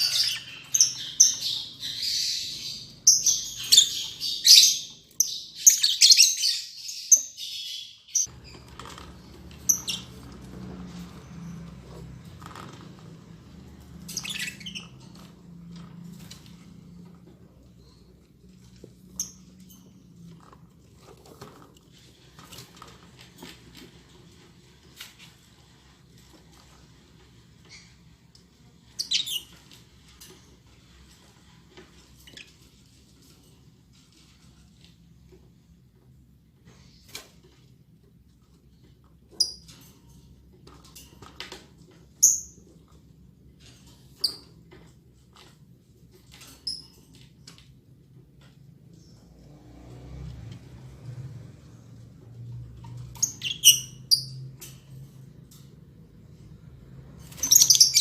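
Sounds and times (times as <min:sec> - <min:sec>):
bird squeaking: 0:00.0 - 0:08.3, 0:53.2 - 0:54.4, 0:57.4 - 0:58.0
lovebirds shrill calls: 0:00.0 - 0:08.3, 0:14.1 - 0:14.9, 0:29.0 - 0:29.5, 0:53.2 - 0:54.4, 0:57.3 - 0:58.0.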